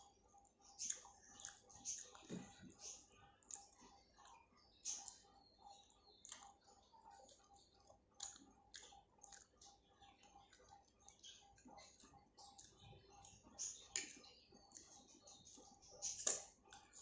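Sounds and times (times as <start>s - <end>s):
person chewing food: 0.0s - 17.0s
wet mouth clicks: 0.8s - 5.2s, 6.2s - 15.0s.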